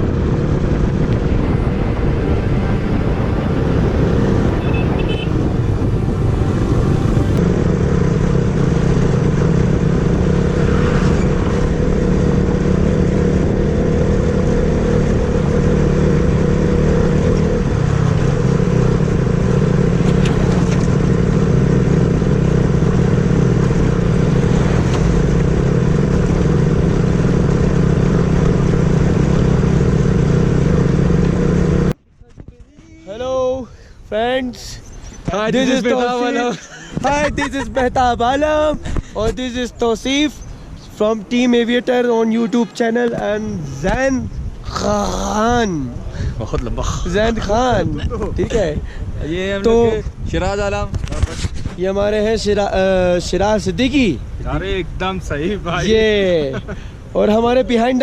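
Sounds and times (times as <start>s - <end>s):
motorcycle engine running: 0.0s - 32.0s
road and wind noise: 0.0s - 58.0s.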